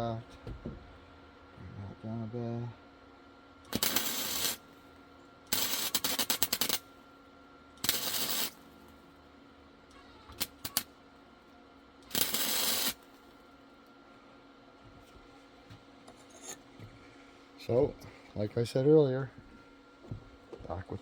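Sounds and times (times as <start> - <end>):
welder arc crackling: 3.7 - 4.6, 5.5 - 6.8, 7.8 - 8.6, 10.3 - 10.9, 12.0 - 13.2.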